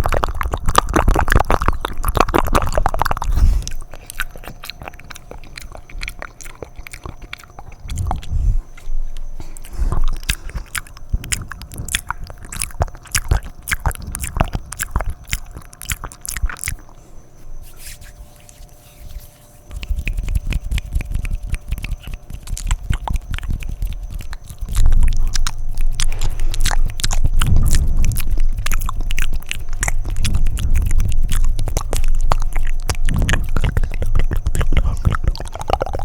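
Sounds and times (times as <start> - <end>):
wet mouth clicks and smacks: 0.0 - 8.9, 9.5 - 16.8, 19.7 - 36.0.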